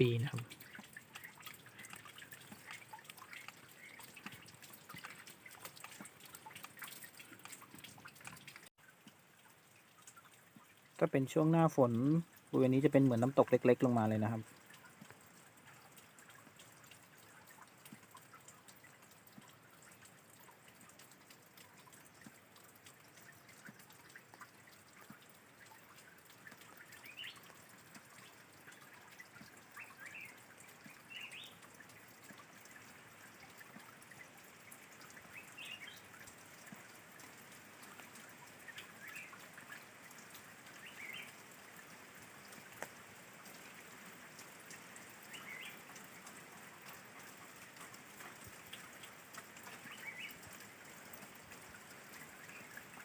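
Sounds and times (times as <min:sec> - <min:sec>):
water trickling and dripping: 0:00.0 - 0:53.0
bird chirping: 0:26.9 - 0:27.4, 0:29.7 - 0:31.6, 0:35.3 - 0:36.0, 0:40.8 - 0:41.3, 0:45.3 - 0:45.8, 0:49.8 - 0:50.4.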